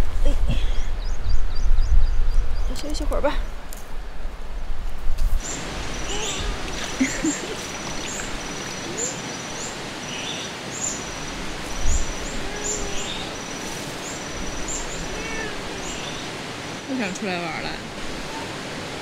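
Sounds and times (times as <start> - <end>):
steady hiss: 5.2 - 19.0
small birds chirping: 5.4 - 18.6.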